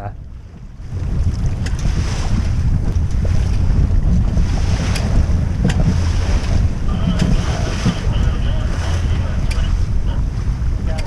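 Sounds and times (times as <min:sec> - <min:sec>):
water rushing past hull: 0:00.0 - 0:11.0
wind buffeting microphone: 0:00.0 - 0:11.0.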